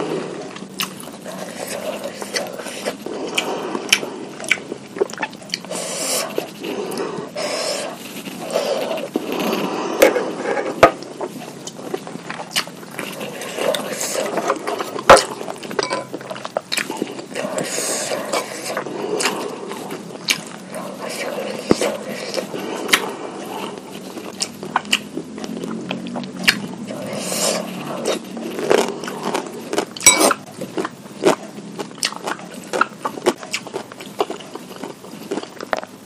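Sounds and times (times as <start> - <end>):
chewing and slurping: 0.0 - 36.0.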